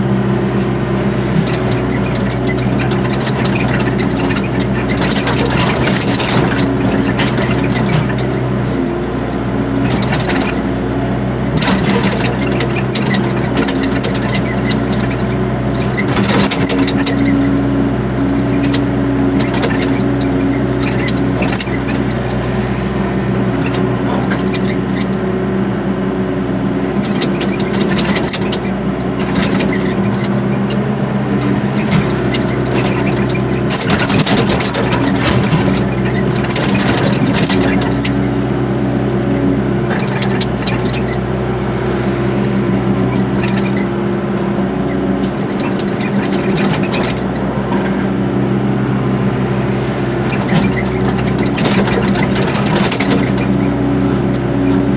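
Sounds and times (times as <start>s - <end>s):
excavator diesel engine running: 0.0s - 54.9s
metallic clanking and rattling: 1.4s - 8.8s, 9.8s - 10.7s, 11.5s - 17.3s, 18.5s - 20.2s, 27.0s - 30.8s, 31.4s - 38.2s, 42.9s - 48.2s, 50.3s - 53.7s.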